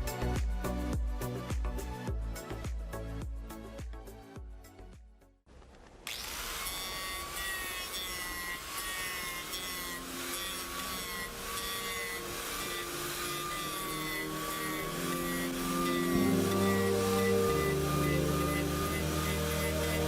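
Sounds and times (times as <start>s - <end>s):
power tool cutting wood: 6.0s - 20.0s.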